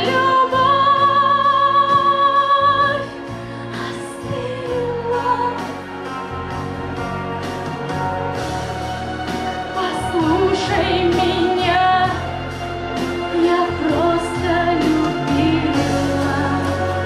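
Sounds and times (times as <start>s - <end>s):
woman singing with vibrato: 0.0s - 6.0s, 9.8s - 12.3s, 13.3s - 17.0s
backing music: 0.0s - 17.0s.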